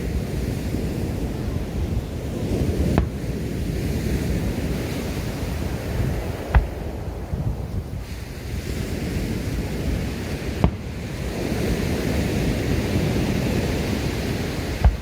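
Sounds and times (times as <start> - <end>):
wind on microphone: 0.0 - 15.0
fireworks bang: 2.9 - 3.4, 6.4 - 7.0, 10.5 - 11.5, 14.6 - 15.0.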